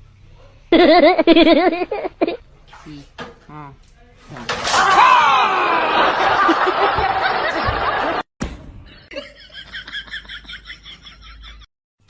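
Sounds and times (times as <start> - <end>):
person laughing in bursts: 0.7 - 2.4, 5.8 - 8.2, 9.1 - 11.7.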